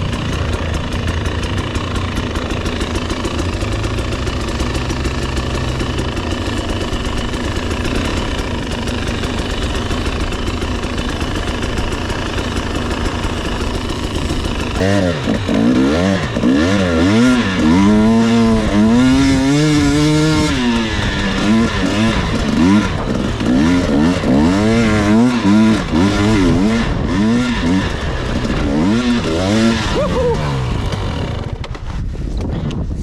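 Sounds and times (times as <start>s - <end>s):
dirt bike engine revving: 0.0s - 31.9s.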